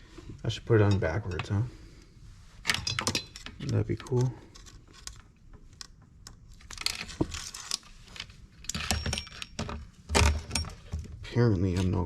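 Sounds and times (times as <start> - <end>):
metal chain clinking and rattling: 2.6 - 3.7, 6.8 - 11.1.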